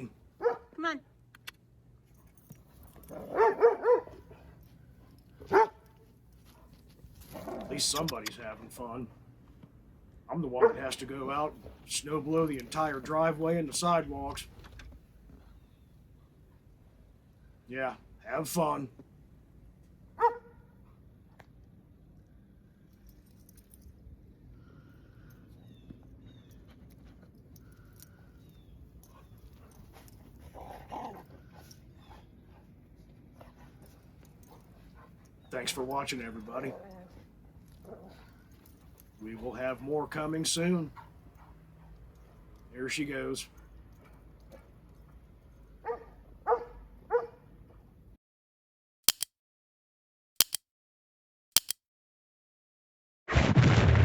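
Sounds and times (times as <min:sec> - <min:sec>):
dog yelp: 0:00.4 - 0:00.7, 0:03.1 - 0:04.2, 0:05.5 - 0:05.8, 0:20.2 - 0:20.6, 0:45.8 - 0:47.4
sharp double clicks: 0:49.1 - 0:49.3, 0:50.4 - 0:50.6, 0:51.6 - 0:51.8.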